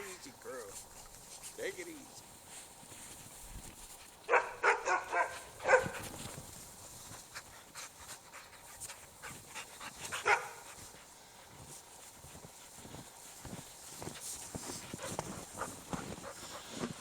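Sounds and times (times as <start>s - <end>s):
dog barking: 4.3s - 6.1s, 10.2s - 10.6s.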